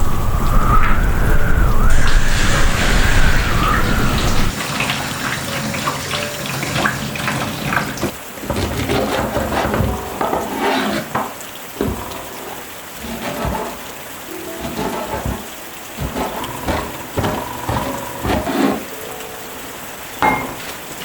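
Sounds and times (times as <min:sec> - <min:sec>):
low rumble: 0:00.0 - 0:04.5
water running and splashing: 0:00.0 - 0:21.0.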